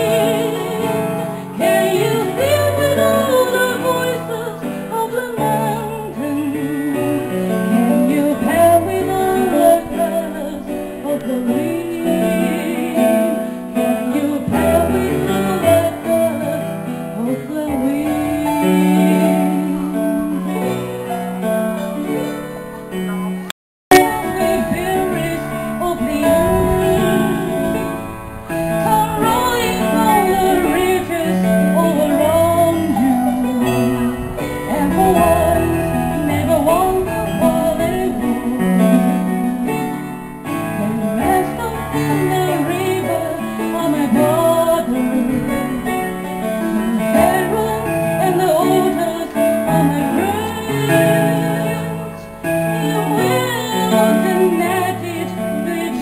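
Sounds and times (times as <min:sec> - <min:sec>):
person singing: 0:00.0 - 0:28.1, 0:28.7 - 0:56.0
guitar accompaniment: 0:00.0 - 0:56.0.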